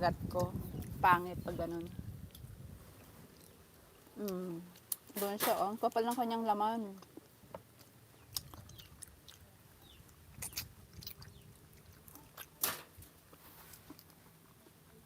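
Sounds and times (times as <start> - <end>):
wet chewing mouth clicks: 1.8 - 5.1, 7.0 - 14.8.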